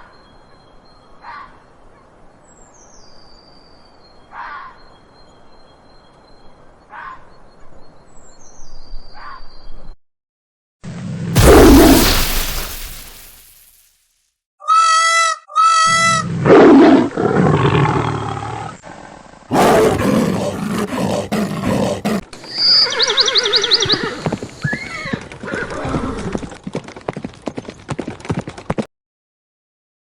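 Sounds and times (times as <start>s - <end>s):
animal calls: 19.5s - 26.2s.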